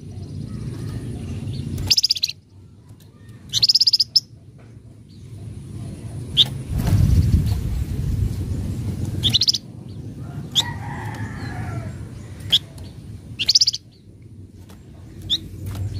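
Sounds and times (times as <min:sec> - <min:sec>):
low background rumble: 0:00.0 - 0:15.9
bird chattering calls: 0:00.4 - 0:02.4, 0:03.4 - 0:04.3, 0:09.2 - 0:09.6, 0:12.3 - 0:14.0.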